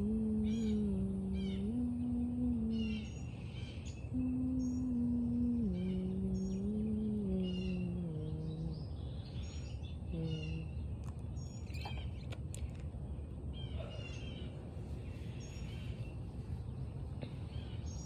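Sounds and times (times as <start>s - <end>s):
low background rumble: 0.0s - 18.0s
low pitched hum: 0.0s - 18.0s
small birds chirping: 0.0s - 18.0s.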